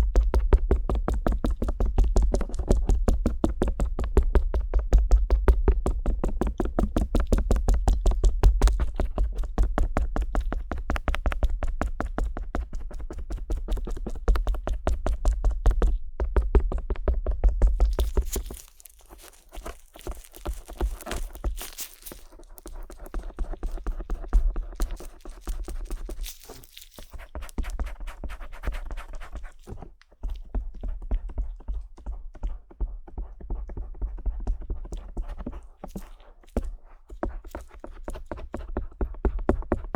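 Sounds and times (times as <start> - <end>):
scratching and rubbing on microphone: 17.6 - 39.0.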